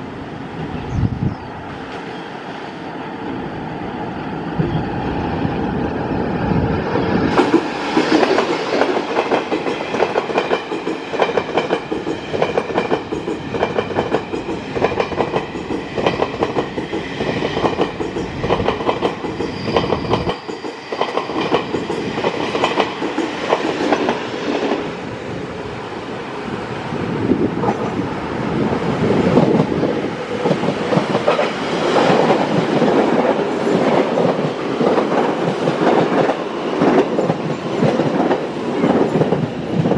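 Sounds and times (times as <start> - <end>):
train wheels clicking over rail joints: 7.3 - 24.8, 30.3 - 39.9.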